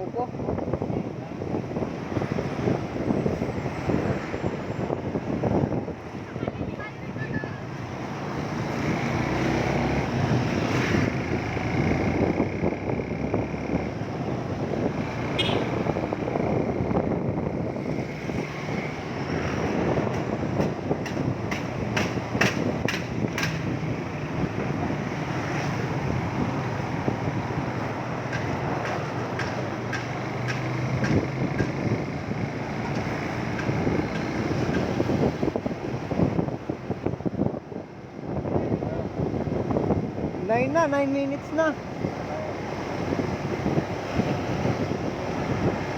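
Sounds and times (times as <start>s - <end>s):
road and wind noise: 0.0s - 45.9s.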